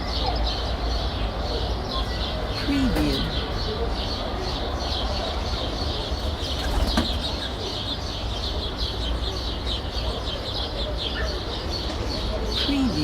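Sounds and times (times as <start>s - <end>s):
small birds chirping: 0.0s - 13.0s
distant traffic hum: 0.1s - 13.0s.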